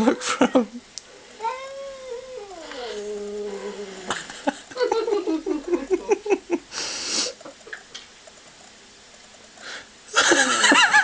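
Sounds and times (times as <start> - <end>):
person laughing: 0.0 - 0.8, 4.0 - 6.7, 10.1 - 11.0.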